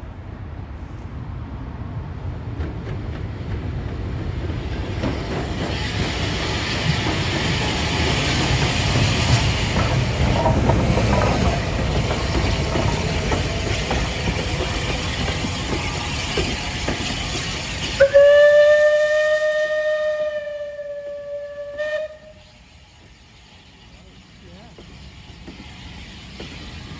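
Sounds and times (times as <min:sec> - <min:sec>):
steam train running: 0:00.0 - 0:26.9
steam locomotive whistle: 0:15.6 - 0:23.7.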